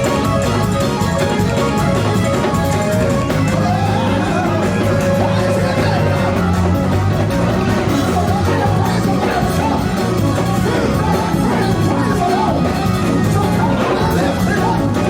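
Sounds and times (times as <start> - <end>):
church band playing: 0.0 - 15.0
congregation singing: 0.0 - 15.0.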